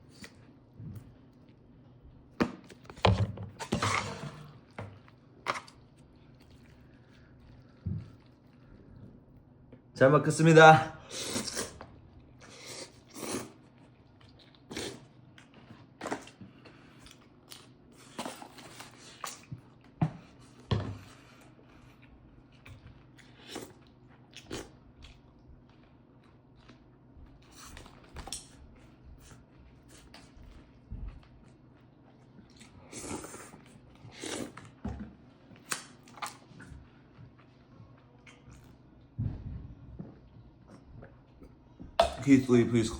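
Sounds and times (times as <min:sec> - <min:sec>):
person chewing: 0:04.6 - 0:09.2, 0:11.2 - 0:34.8, 0:35.6 - 0:37.6.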